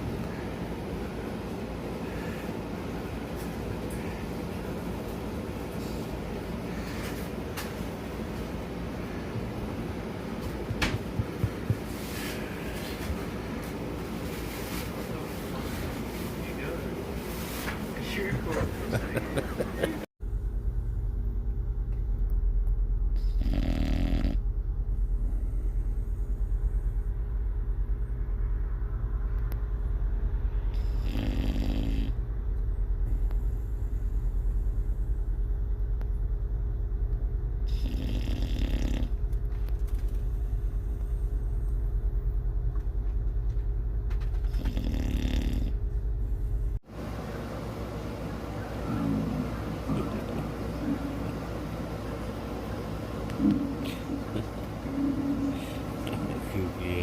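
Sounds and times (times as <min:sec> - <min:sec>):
steady low hum: 0:00.0 - 0:57.0
dog snoring: 0:23.2 - 0:24.4, 0:30.7 - 0:32.2, 0:37.6 - 0:39.2, 0:44.3 - 0:45.8.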